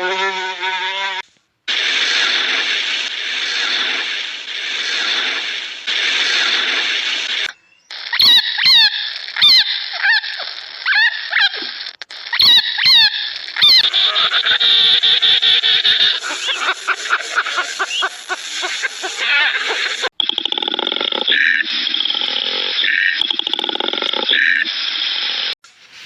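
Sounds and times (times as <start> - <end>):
high animal squeals: 0.0 - 1.2, 6.2 - 20.1
steady hiss: 1.2 - 8.2, 13.1 - 20.1, 24.7 - 26.0.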